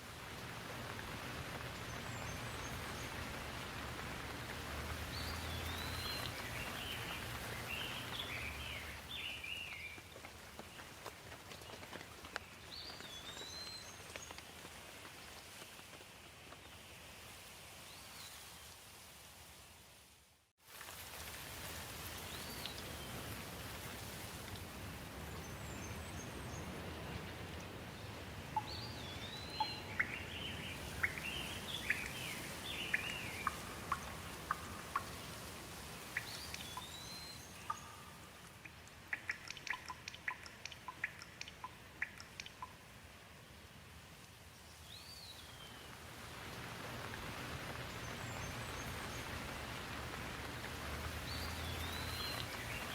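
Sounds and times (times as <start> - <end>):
steady rain: 0.0 - 52.9
birds chirping: 5.0 - 10.1, 27.9 - 35.4, 36.1 - 42.8, 51.0 - 52.9.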